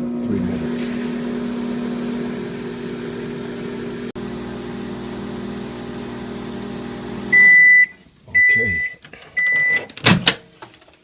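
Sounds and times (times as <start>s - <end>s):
microwave oven humming: 0.0s - 8.8s.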